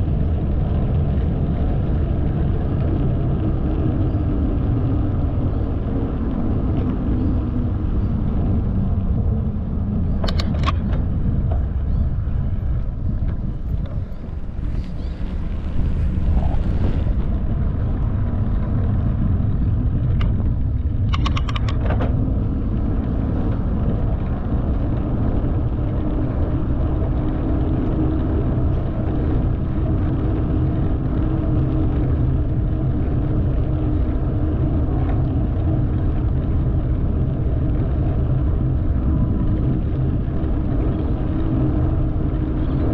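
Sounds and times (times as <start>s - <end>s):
bike tyres rumbling on pavement: 0.0s - 42.9s
sharp clicks: 10.2s - 11.0s, 21.0s - 22.1s.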